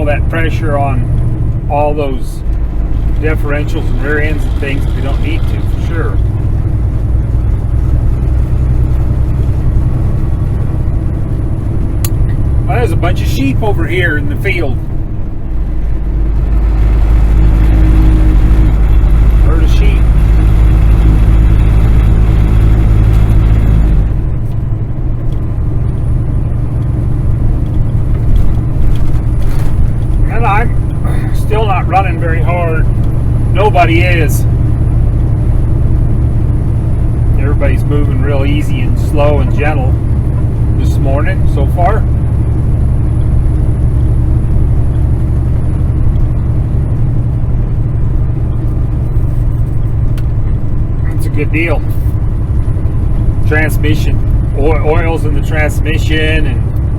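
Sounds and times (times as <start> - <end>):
road noise: 0.0 - 56.9
truck diesel engine drone: 0.0 - 56.9.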